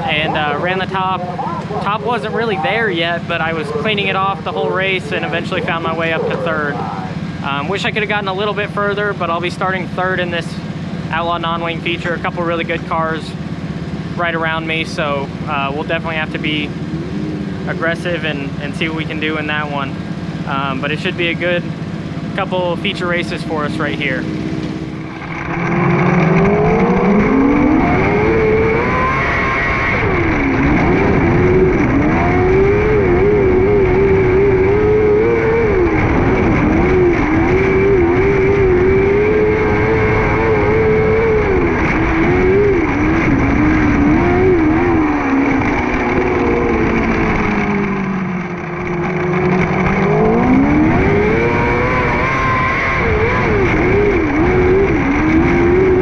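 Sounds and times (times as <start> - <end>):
motorcycle engine at racing speed: 0.0 - 56.0.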